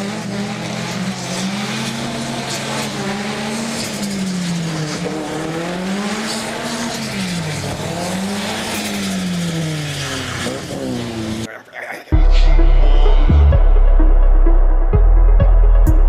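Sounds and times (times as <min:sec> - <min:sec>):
car engine revving: 0:00.0 - 0:11.5
low engine drone: 0:00.0 - 0:16.0.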